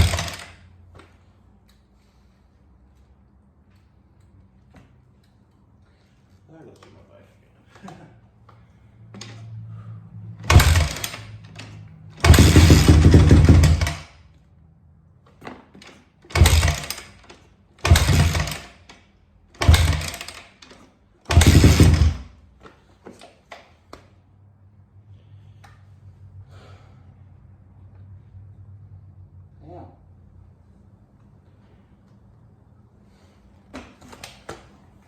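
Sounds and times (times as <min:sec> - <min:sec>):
motorcycle engine revving and idling: 0:00.0 - 0:00.6, 0:10.3 - 0:14.2, 0:16.2 - 0:18.9, 0:19.5 - 0:20.6, 0:21.3 - 0:22.4.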